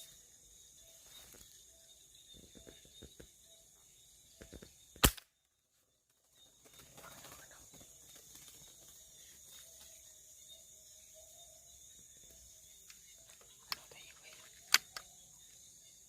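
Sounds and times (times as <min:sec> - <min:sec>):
night insects chirring: 0:00.0 - 0:16.0
air rifle shot: 0:05.0 - 0:05.2.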